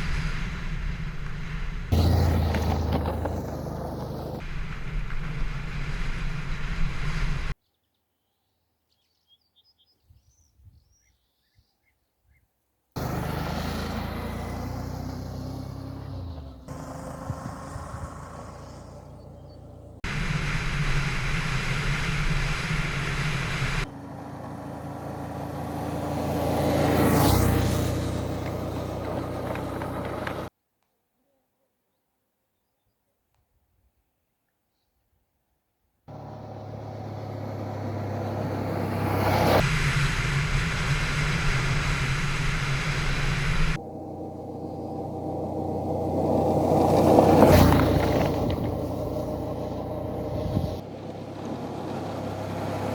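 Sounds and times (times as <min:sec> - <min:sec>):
vehicle approaching: 0:00.0 - 0:07.5, 0:13.0 - 0:30.5, 0:36.1 - 0:52.9
vehicle engine running: 0:00.0 - 0:07.5, 0:13.0 - 0:30.5, 0:36.1 - 0:52.9.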